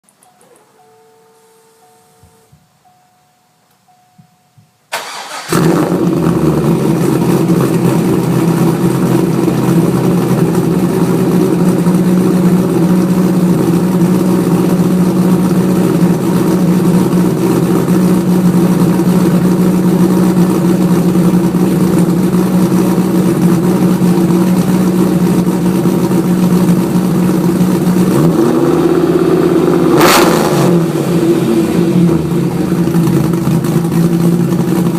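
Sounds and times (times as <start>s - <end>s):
car engine starting and idling: 4.8s - 34.9s
engine revving: 5.0s - 13.4s, 26.2s - 34.9s.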